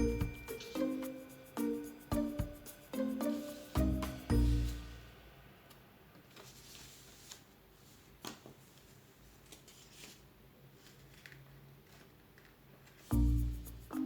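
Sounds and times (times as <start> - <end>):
paper rustling being folded: 6.3 - 13.2.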